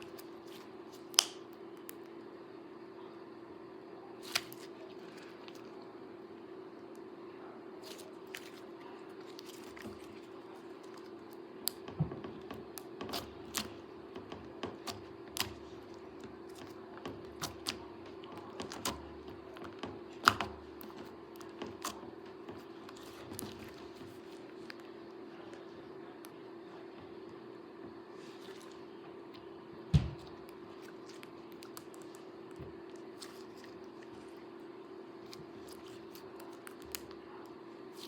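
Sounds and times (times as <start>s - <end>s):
steady low hum: 0.0s - 38.0s
slime squished by hand: 4.2s - 5.8s, 7.8s - 11.9s, 12.5s - 24.8s, 29.9s - 34.4s, 35.2s - 37.2s.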